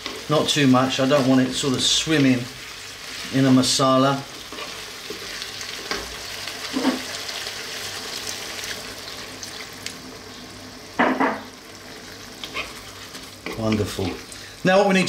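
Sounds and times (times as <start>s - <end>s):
wooden spatula scraping: 0.0s - 7.1s, 12.4s - 14.3s
curry sizzling in a wok: 0.0s - 15.0s.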